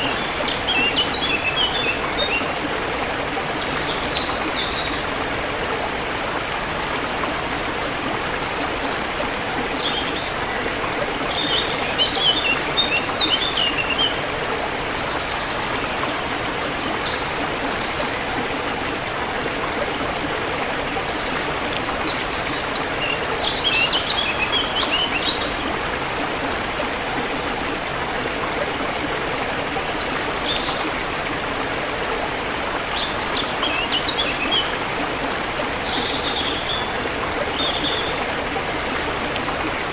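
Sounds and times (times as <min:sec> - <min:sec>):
river water flowing: 0:00.0 - 0:39.9
birds chirping and twittering: 0:09.6 - 0:18.2.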